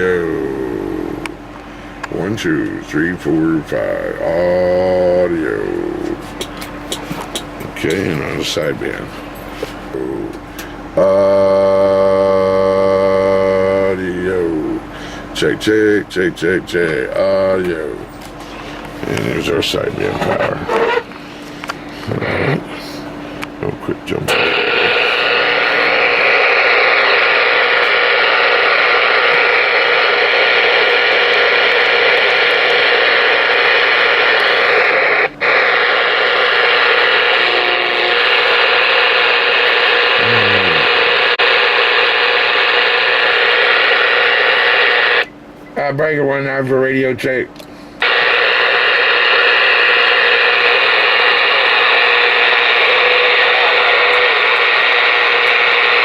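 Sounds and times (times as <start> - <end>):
radio static hiss: 18.9 - 21.1, 21.9 - 45.3, 48.0 - 56.0.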